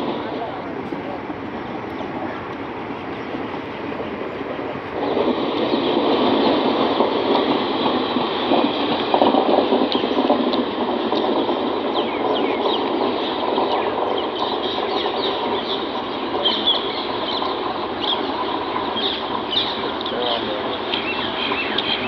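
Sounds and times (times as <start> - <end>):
train wheels running on rail: 0.0 - 22.0.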